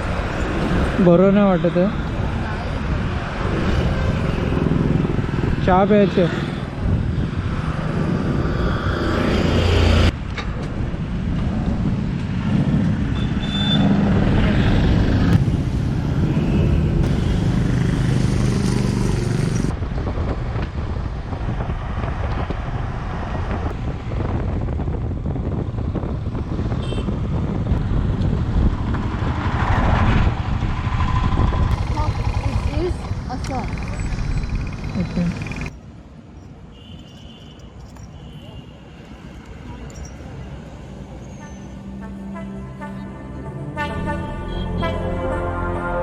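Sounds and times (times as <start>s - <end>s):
road noise: 0.0s - 46.0s
wind rushing: 2.0s - 13.2s, 14.0s - 34.9s
motorcycle engine running: 31.7s - 35.7s.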